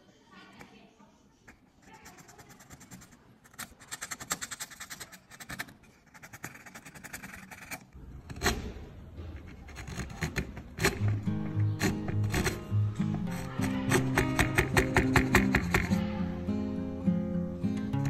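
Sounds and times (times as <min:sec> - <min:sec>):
hand tool scratching wood: 0:01.5 - 0:16.1
sharp knocks: 0:08.3 - 0:16.0.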